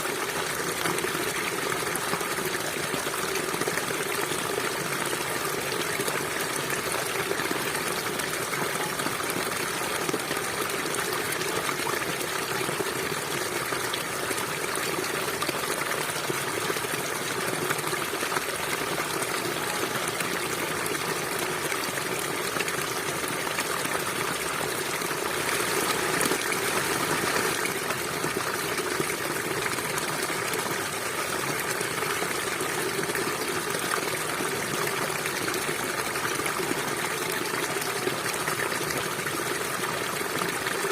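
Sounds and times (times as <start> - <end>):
stream flowing over rocks: 0.0 - 40.9.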